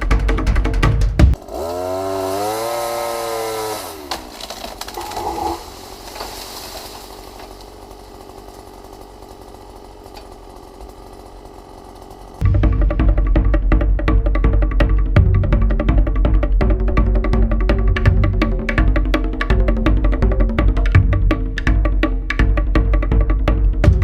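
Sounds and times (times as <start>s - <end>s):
music: 0.0s - 1.4s, 12.4s - 24.0s
two-stroke saw engine revving: 1.2s - 15.0s.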